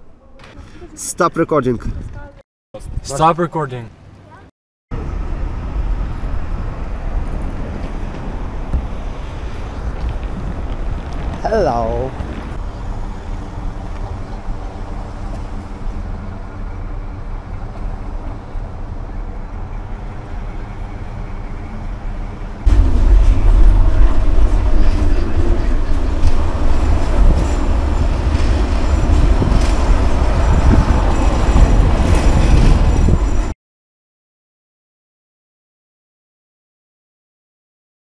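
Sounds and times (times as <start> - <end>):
vehicle engine rumble: 4.0 - 33.5.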